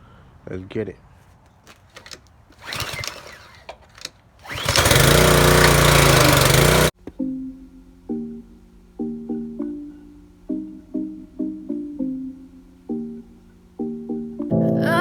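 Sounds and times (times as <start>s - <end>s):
rasping burst: 2.6s - 3.7s, 4.4s - 7.0s
pressure washer spraying: 4.5s - 6.9s.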